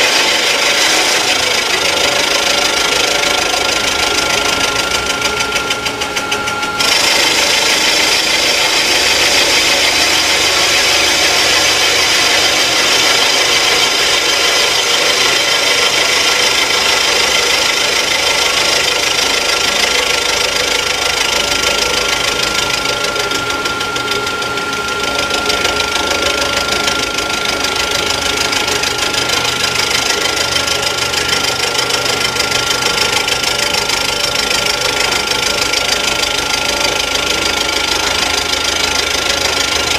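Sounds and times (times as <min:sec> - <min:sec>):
machine cutting metal: 0:00.0 - 0:39.9
thin high whine: 0:00.0 - 0:39.9.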